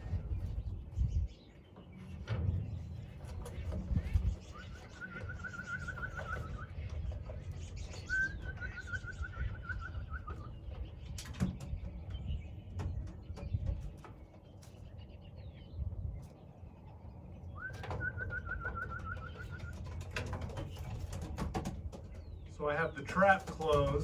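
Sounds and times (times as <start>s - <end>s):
bird trilling: 3.0s - 11.2s, 17.5s - 20.0s.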